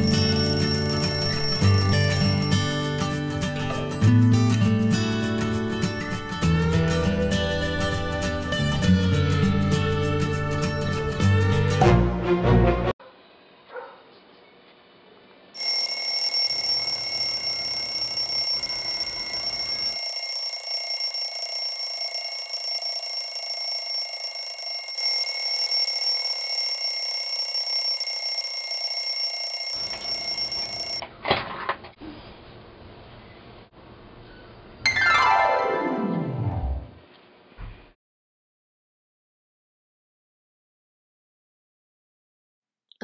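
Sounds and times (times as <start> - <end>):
high-pitched alarm ringing: 0.0 - 2.7, 15.6 - 31.0.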